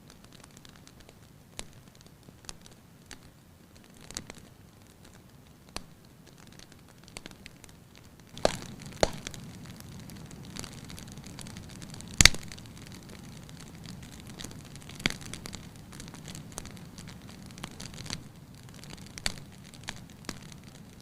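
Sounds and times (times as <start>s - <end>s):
wood fire crackling: 0.0s - 21.0s
loud pop of fire: 8.4s - 9.8s, 12.2s - 12.6s.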